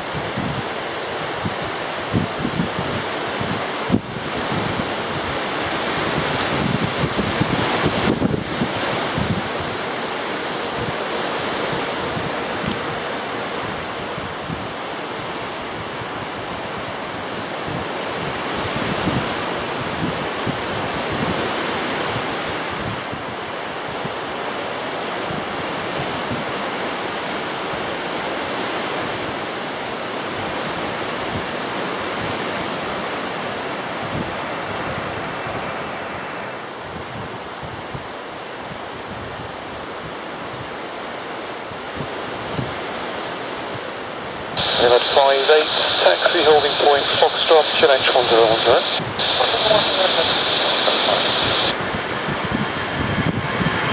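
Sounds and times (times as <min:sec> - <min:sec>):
wind buffeting microphone: 0:00.0 - 0:24.2, 0:50.2 - 0:53.9
faint high whine: 0:44.6 - 0:53.9.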